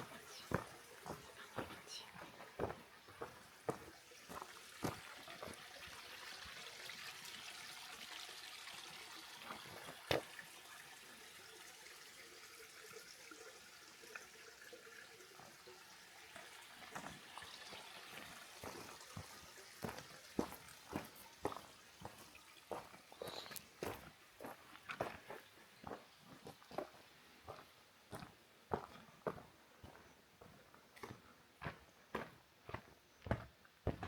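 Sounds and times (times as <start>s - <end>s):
footsteps on path: 0.0s - 5.6s, 18.2s - 34.0s
running water hiss: 0.0s - 27.7s.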